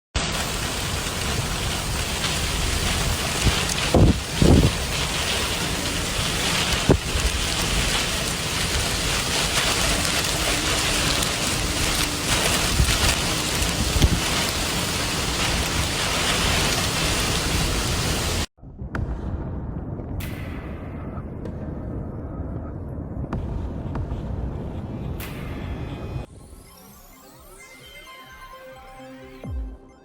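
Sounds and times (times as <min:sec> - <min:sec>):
heavy rain falling: 0:00.2 - 0:18.5.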